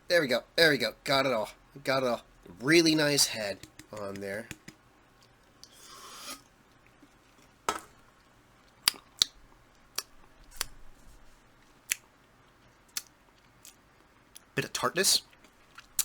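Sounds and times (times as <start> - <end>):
mouth clicks and lip smacks: 3.6 - 5.7, 8.7 - 10.8, 11.8 - 14.5, 15.3 - 16.0.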